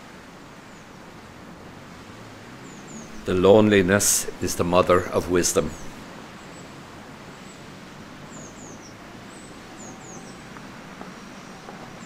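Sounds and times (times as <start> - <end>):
steady background hiss: 0.0 - 12.0
small birds chirping: 2.5 - 4.4, 5.4 - 12.0.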